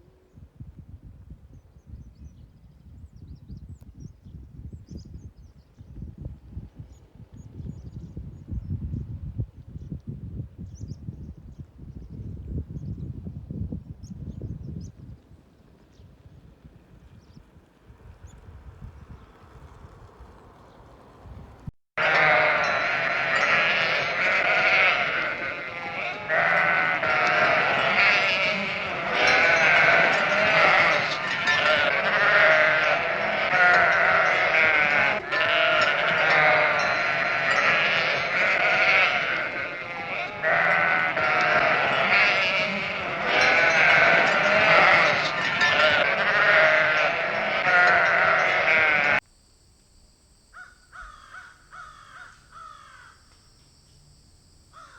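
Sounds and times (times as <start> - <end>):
sheep bleating: 22.0 - 49.2.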